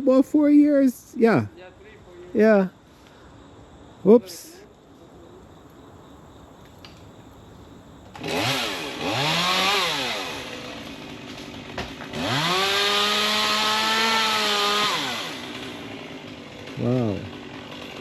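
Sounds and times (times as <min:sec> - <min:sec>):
chainsaw revving: 0:08.0 - 0:18.0.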